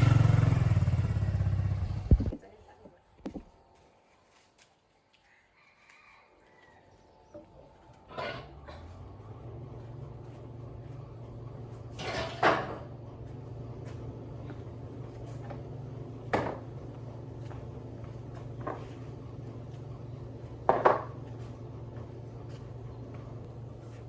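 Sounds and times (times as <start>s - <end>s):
steady low hum: 0.0s - 2.5s.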